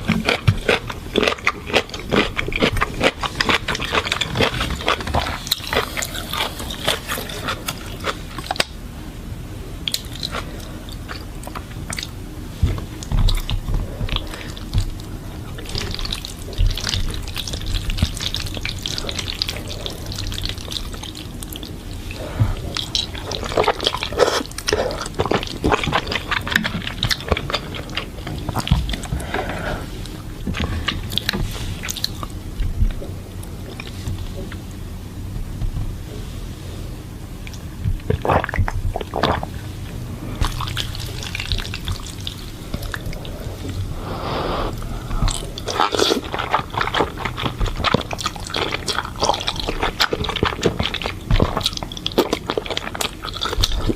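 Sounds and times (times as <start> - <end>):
slurping and chewing noodles: 0.0 - 8.8, 9.8 - 34.7, 37.5 - 53.9.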